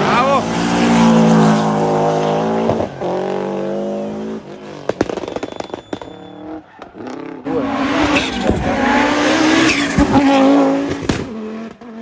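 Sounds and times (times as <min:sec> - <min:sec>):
rally car engine at high revs: 0:00.0 - 0:12.0
sharp pops and cracks: 0:04.9 - 0:06.1.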